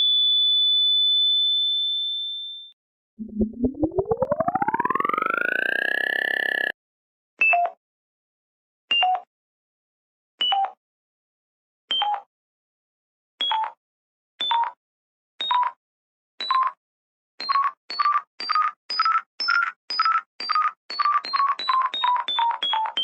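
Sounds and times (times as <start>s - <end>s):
short electronic blips: 3.2s - 6.7s.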